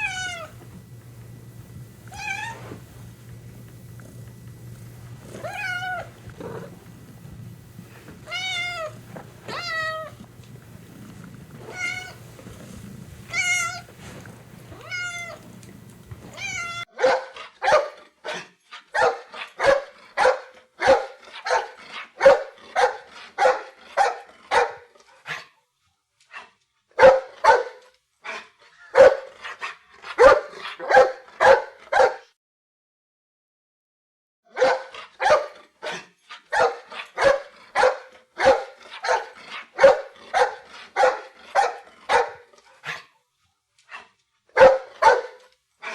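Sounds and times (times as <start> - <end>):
cat meowing: 0.0 - 0.6, 2.1 - 2.9, 5.2 - 6.6, 8.2 - 10.2, 11.6 - 12.3, 13.3 - 14.0, 14.7 - 15.6, 16.2 - 16.9
low steady hum: 0.0 - 16.9
dog barking: 16.8 - 25.5, 27.0 - 29.3, 30.1 - 32.3, 34.5 - 43.1, 44.6 - 45.9.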